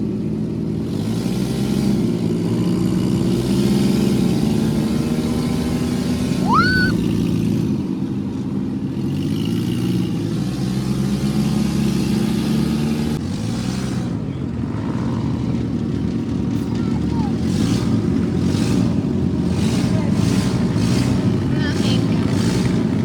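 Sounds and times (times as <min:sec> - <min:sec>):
vehicle engine running: 0:00.0 - 0:23.0
short rising whistle: 0:06.4 - 0:07.0.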